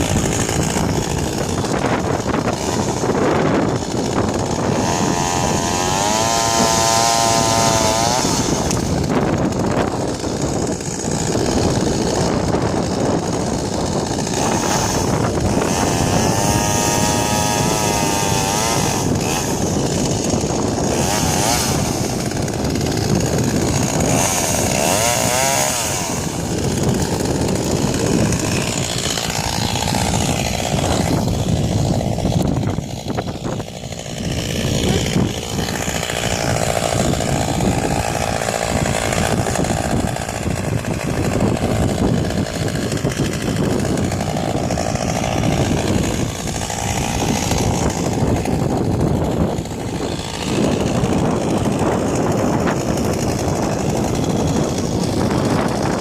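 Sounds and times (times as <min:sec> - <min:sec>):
chainsaw running: 0:00.0 - 0:56.0.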